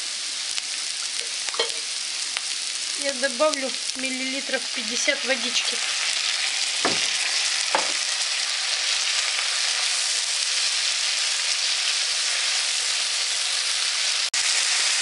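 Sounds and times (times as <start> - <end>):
onions sizzling in a frying pan: 0.0 - 15.0
short knock: 6.8 - 7.1.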